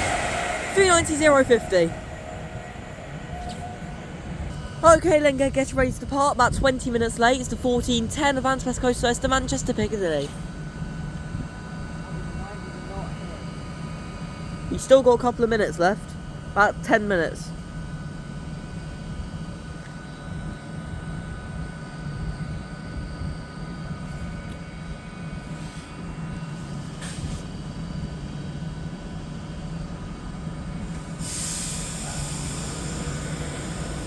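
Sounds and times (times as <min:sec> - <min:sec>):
high hiss: 0:00.0 - 0:04.6, 0:30.9 - 0:34.0
faint whining tones: 0:00.0 - 0:11.4
electric train hum: 0:00.0 - 0:34.0.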